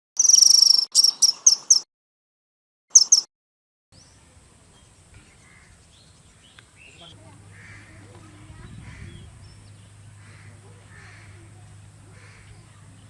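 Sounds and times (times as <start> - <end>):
bird trilling and chirping: 0.2 - 1.8, 2.9 - 3.3
faint outdoor background: 0.2 - 1.9, 2.9 - 3.3, 3.9 - 13.0.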